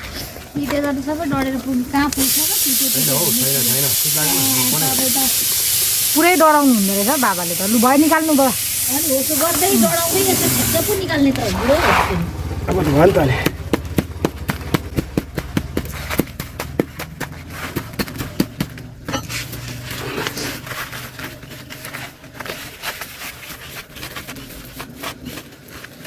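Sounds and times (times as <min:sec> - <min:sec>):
fire crackling: 0:00.0 - 0:15.2.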